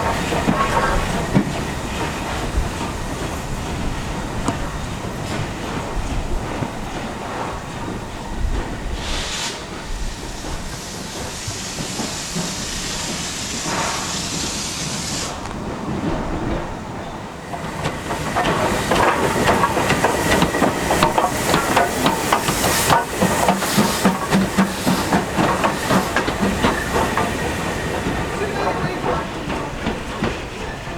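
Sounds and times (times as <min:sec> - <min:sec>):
steam locomotive hissing: 0:00.0 - 0:30.9
train clattering rhythmically: 0:00.0 - 0:30.9.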